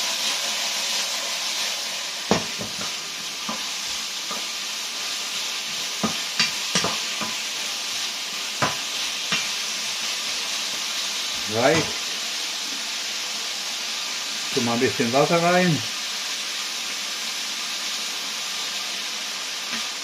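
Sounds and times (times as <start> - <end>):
food sizzling in a wok: 0.0 - 20.0
utensil knocking against wok: 2.3 - 4.5, 6.0 - 7.4, 8.6 - 9.6, 11.7 - 12.0.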